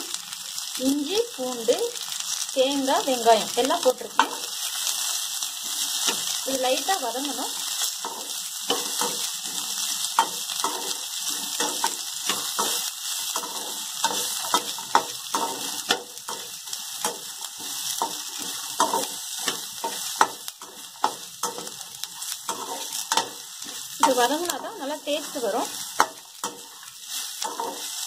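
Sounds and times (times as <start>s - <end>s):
food sizzling in hot oil: 0.0s - 28.0s
metal spatula scraping pan: 7.4s - 28.0s.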